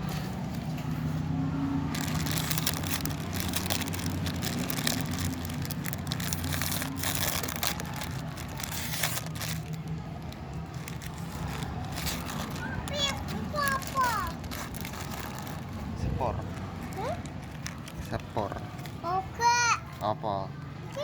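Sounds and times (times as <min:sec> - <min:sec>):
plastic crinkling: 0:01.8 - 0:19.0.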